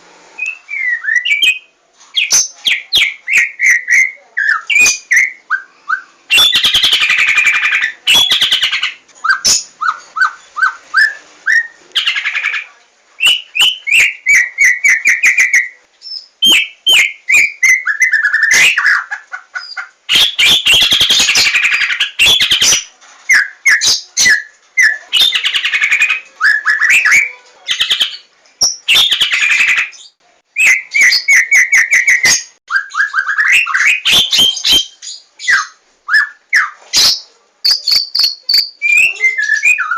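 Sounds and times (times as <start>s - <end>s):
songbird singing: 0.4s - 39.9s.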